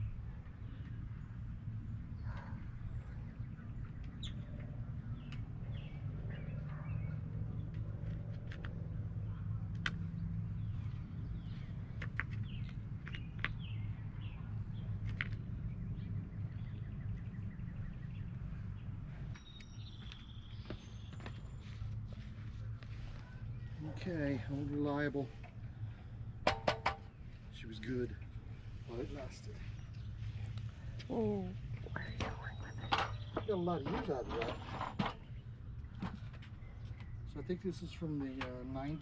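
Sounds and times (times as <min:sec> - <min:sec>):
steady low rumble: 0:00.0 - 0:33.9
birds chirping: 0:00.0 - 0:39.0
sharp clicks and knocks: 0:26.4 - 0:27.1.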